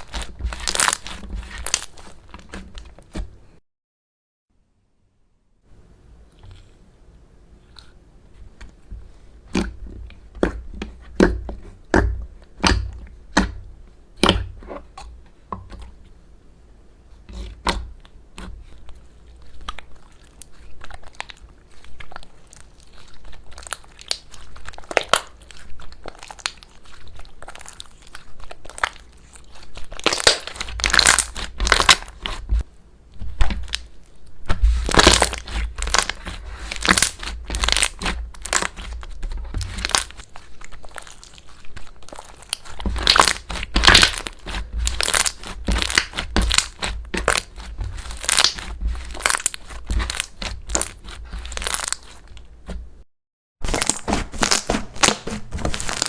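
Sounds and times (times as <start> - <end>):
slime popping and crackling: 0.0 - 2.9, 19.4 - 32.6, 33.2 - 52.5, 53.6 - 56.0.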